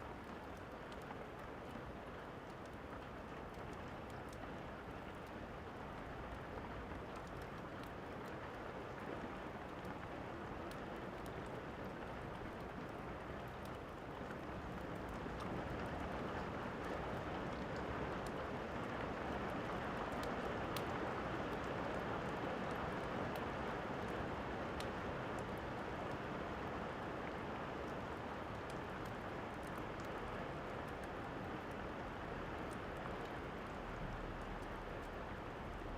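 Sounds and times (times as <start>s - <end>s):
steady rain falling: 0.0s - 35.9s
fireplace crackles and pops: 19.6s - 26.3s, 27.2s - 35.9s.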